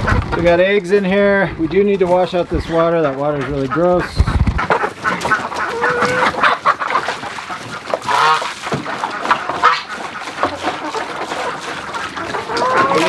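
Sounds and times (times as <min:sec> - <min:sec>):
chickens clucking and squawking: 0:00.0 - 0:13.0
goose honking: 0:03.4 - 0:13.0.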